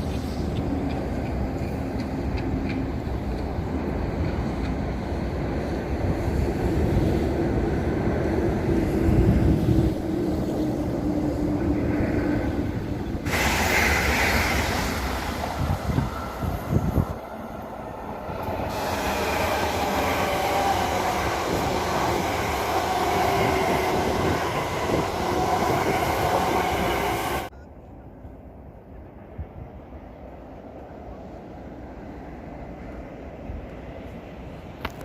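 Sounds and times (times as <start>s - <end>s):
train wheels rumbling on rails: 0.0s - 27.6s.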